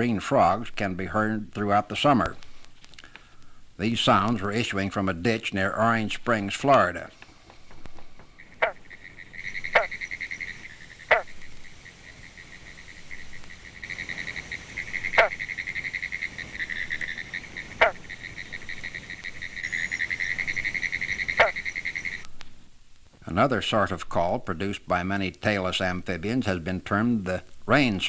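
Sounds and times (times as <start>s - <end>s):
frogs calling: 3.0s - 22.3s.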